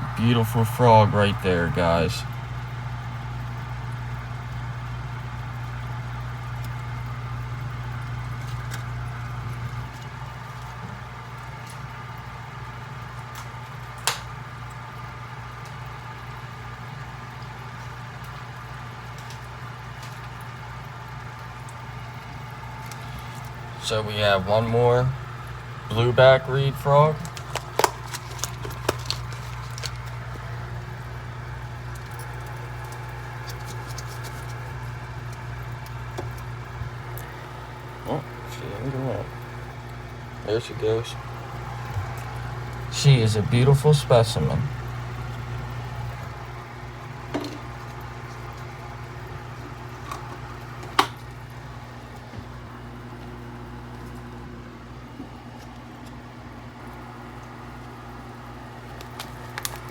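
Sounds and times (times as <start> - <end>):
steady low hum: 0.0 - 59.9
light clicks and scratches: 27.2 - 30.2, 32.0 - 35.4.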